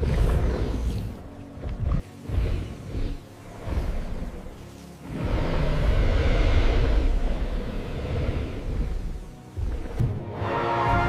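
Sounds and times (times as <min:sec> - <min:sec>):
hiss: 0:02.2 - 0:09.9.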